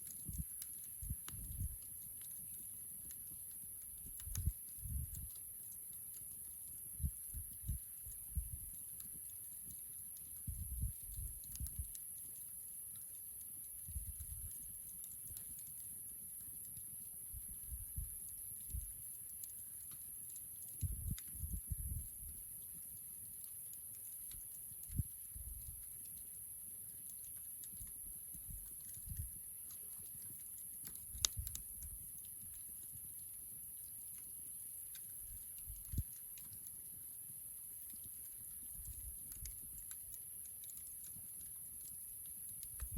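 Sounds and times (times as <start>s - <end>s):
campfire crackling: 0.0s - 42.9s.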